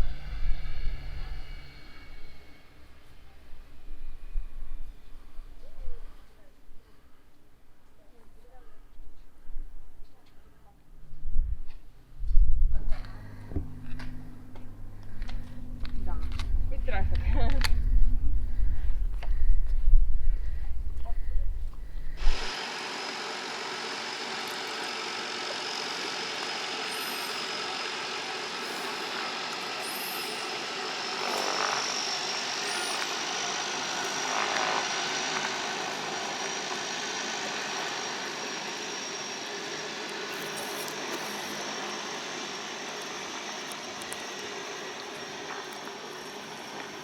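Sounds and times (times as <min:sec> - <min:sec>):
distant propeller engine drone: 0:00.0 - 0:06.2, 0:12.9 - 0:47.0
faint high whine: 0:00.0 - 0:08.5, 0:12.9 - 0:47.0.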